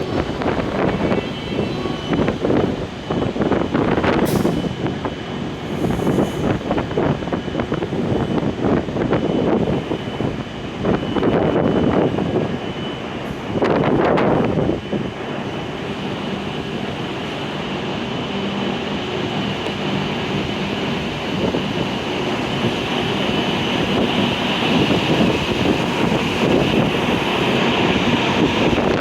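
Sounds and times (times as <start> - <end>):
faint high-pitched tone: 0.0 - 2.7
train rumbling: 0.0 - 29.0.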